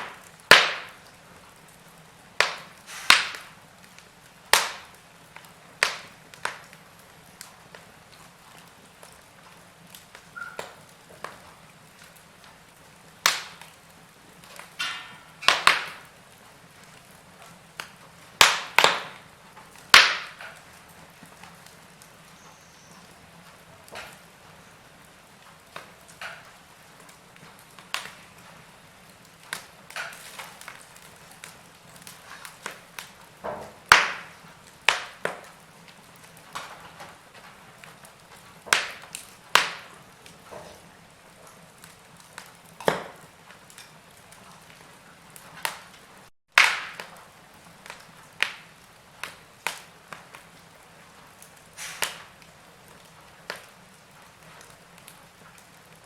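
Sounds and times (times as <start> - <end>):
sharp fire pops: 0.0 - 56.0
wood fire crackling: 0.0 - 56.0.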